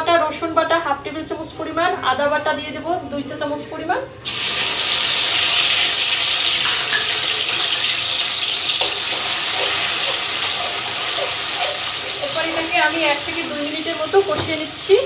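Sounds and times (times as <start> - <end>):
paste sizzling in hot oil: 4.3 - 15.0
spatula stirring: 8.6 - 13.5.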